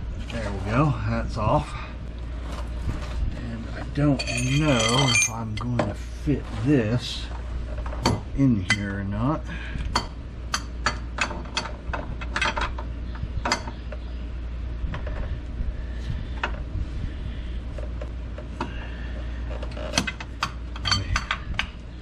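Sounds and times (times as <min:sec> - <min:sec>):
wrench clinking on metal: 0:04.1 - 0:05.7, 0:20.0 - 0:21.4.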